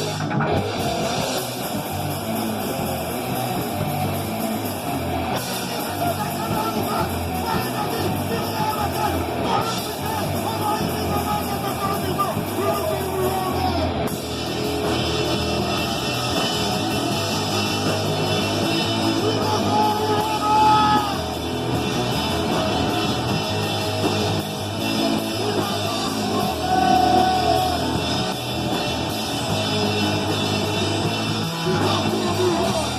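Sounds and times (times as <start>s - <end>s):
distorted electric guitar: 0.0s - 32.9s
drums: 0.0s - 32.9s
person singing: 5.4s - 13.9s, 25.2s - 28.1s, 31.5s - 32.9s.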